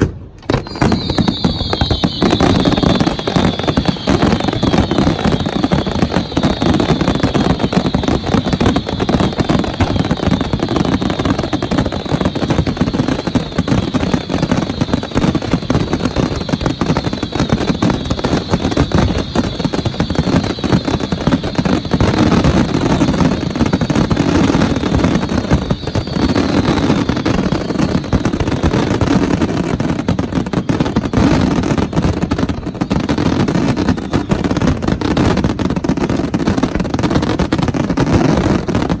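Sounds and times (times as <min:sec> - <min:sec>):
fireworks bangs and crackling: 0:00.0 - 0:39.0
fireworks falling whistles: 0:00.0 - 0:39.0.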